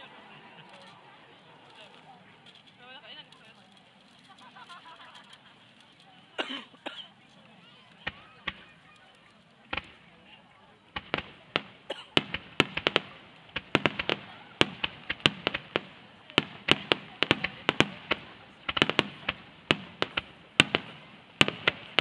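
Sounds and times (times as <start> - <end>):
fireworks shells bursting: 11.0 - 22.0.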